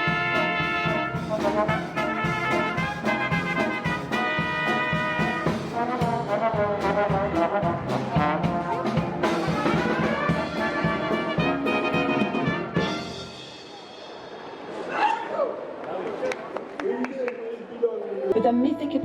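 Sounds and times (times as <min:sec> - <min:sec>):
brass-led orchestral music: 0:00.0 - 0:14.6.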